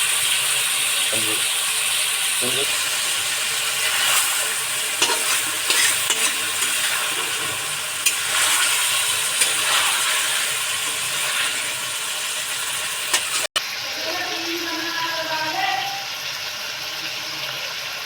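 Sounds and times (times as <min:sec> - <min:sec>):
chicken sizzling in a pan: 0:00.0 - 0:18.0
utensil scraping a pan: 0:02.8 - 0:13.5.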